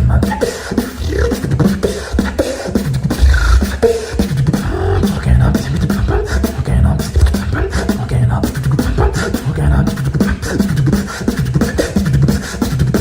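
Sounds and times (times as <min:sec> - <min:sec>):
deep hummed bass line: 0:00.0 - 0:00.3, 0:03.1 - 0:03.8, 0:04.4 - 0:10.0
person beatboxing: 0:00.0 - 0:13.0
pitched vocal effects: 0:00.0 - 0:13.0.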